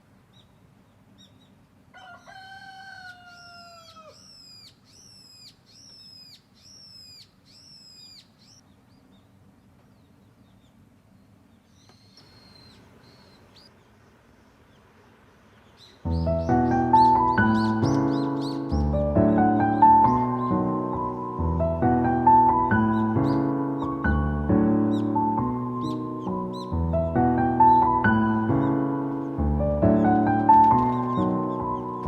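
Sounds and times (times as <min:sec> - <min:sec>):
bird chirping: 0:00.3 - 0:02.3, 0:03.1 - 0:32.0
rooster crowing: 0:01.9 - 0:04.3.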